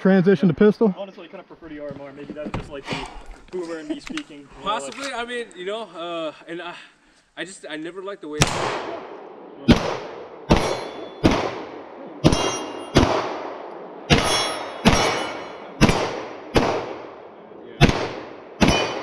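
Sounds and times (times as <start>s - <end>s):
gunshots: 8.4s - 19.0s
steel targets ringing: 10.5s - 11.4s, 12.2s - 13.2s, 14.1s - 16.1s, 18.6s - 19.0s.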